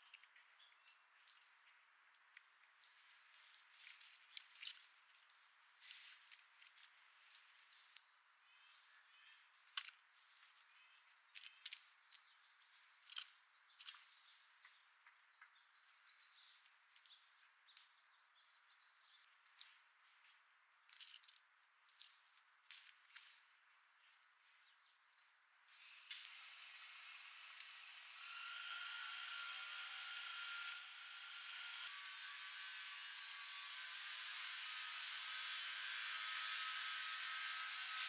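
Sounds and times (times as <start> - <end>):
birds tapping and clicking: 9.5 - 16.1.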